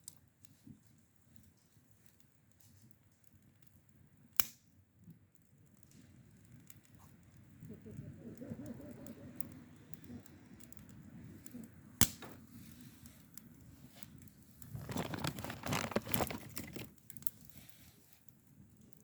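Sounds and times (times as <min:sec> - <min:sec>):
crinkling and rustling: 0:14.6 - 0:17.8.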